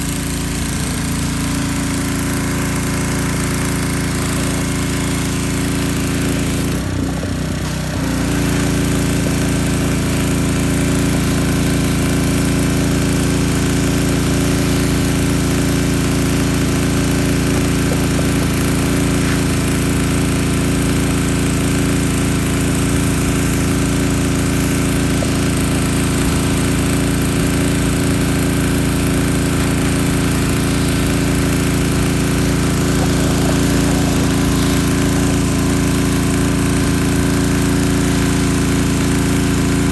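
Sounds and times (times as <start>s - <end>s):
pressure washer engine humming: 0.0s - 39.9s
water spray hissing: 16.3s - 21.4s, 22.2s - 39.4s.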